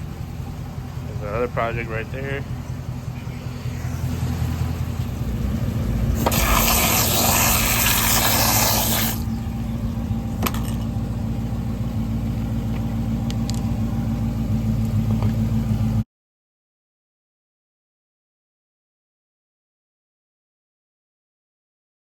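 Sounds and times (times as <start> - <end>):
car engine idling: 0.0 - 16.0
loud rushing noise: 3.3 - 9.4.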